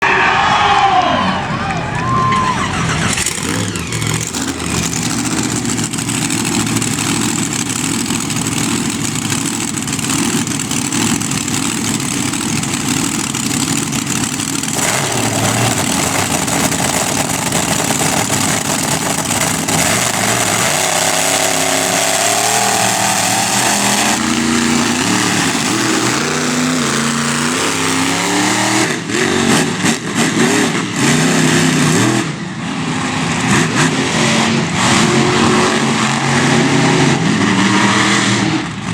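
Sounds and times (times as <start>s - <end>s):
monster truck engine revving: 0.0s - 38.9s.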